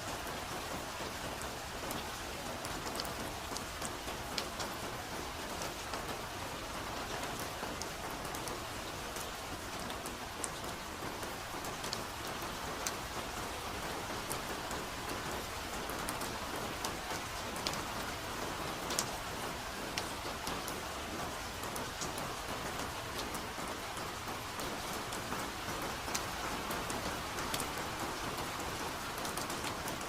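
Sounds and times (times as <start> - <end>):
raindrops pattering on leaves: 0.0 - 30.0
soft rain in a forest: 0.0 - 30.0.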